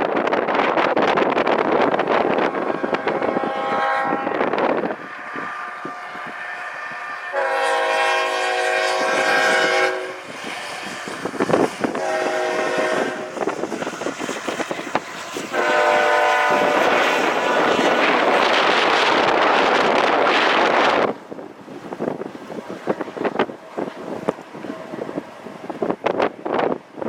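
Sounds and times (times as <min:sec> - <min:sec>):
wind noise on microphone: 0:00.0 - 0:27.0
locomotive air horn: 0:02.4 - 0:11.2, 0:11.8 - 0:14.4, 0:15.1 - 0:18.4.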